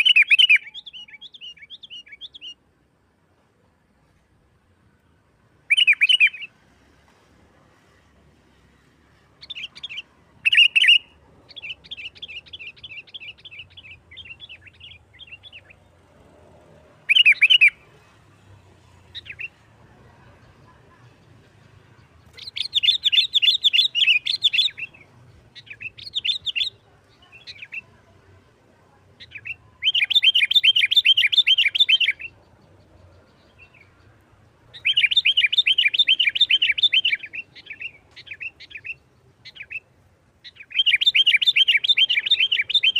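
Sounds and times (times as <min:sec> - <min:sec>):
bird singing rapid chattering trills: 0:00.0 - 0:02.6, 0:09.4 - 0:15.9, 0:22.1 - 0:27.9, 0:29.2 - 0:42.9.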